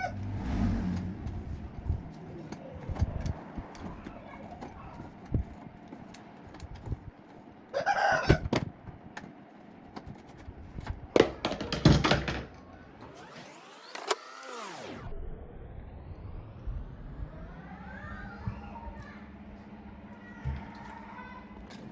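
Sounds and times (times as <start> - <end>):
rooster crowing: 7.7 - 8.5.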